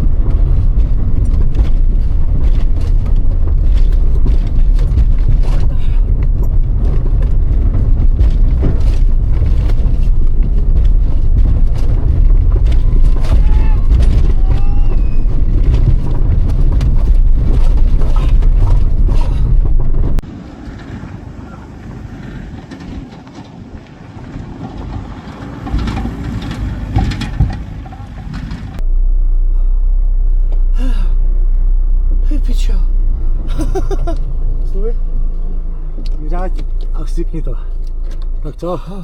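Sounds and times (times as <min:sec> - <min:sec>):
scattered knocks and clatter: 0:00.0 - 0:21.0, 0:22.5 - 0:28.9
rally car engine: 0:00.0 - 0:39.0.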